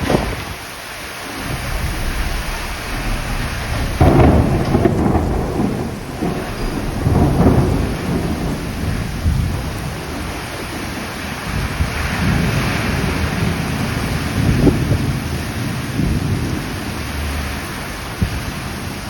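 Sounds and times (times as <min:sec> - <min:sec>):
heavy rain pouring: 0:00.0 - 0:19.0
low rumbling: 0:00.8 - 0:12.3.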